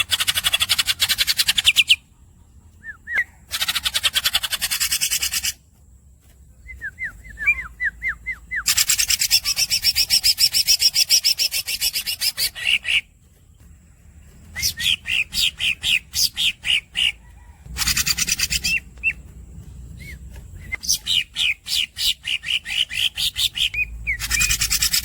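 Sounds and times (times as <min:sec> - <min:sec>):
squeaky bird chirps: 0:00.0 - 0:02.1, 0:02.8 - 0:05.6, 0:06.7 - 0:13.1, 0:14.4 - 0:25.0
bird rasping rolls: 0:00.0 - 0:25.0
bird whistles: 0:06.7 - 0:13.0, 0:14.5 - 0:17.2, 0:20.0 - 0:25.0.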